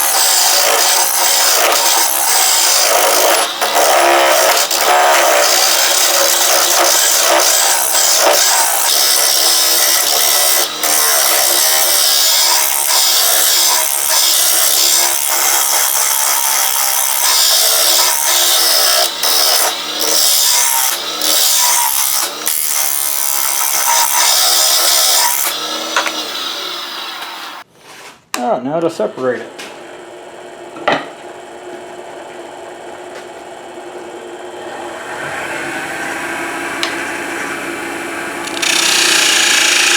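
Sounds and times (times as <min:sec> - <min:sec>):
wood lathe chisel scraping: 0:00.0 - 0:28.1, 0:34.8 - 0:39.9.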